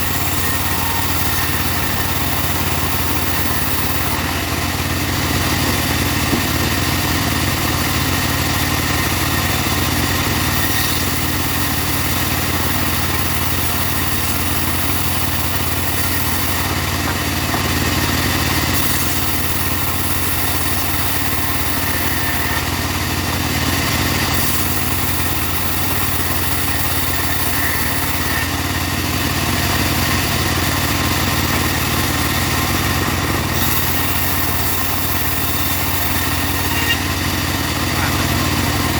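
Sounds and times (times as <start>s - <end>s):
saw blade hissing: 0.0s - 4.2s, 10.5s - 16.7s, 18.7s - 22.6s, 24.3s - 28.5s, 33.4s - 38.8s
bandsaw mill engine drone: 0.0s - 38.9s.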